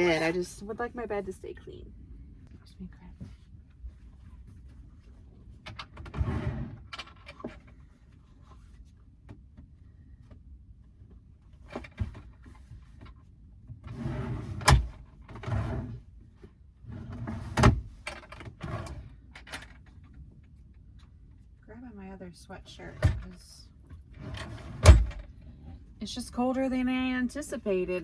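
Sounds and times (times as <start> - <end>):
rustling and handling noises: 3.0 - 5.6.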